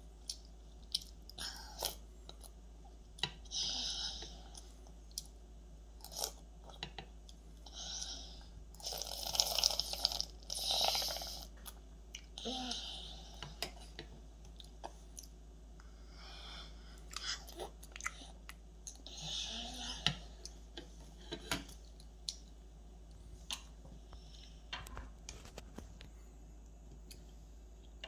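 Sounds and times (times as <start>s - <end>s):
toddler chewing cereal: 7.6s - 15.4s.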